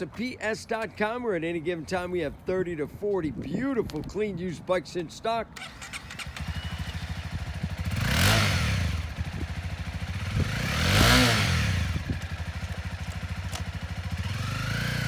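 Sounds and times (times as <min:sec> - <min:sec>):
motorcycle engine idling: 0:05.6 - 0:15.0
motorcycle engine revving: 0:05.6 - 0:15.0.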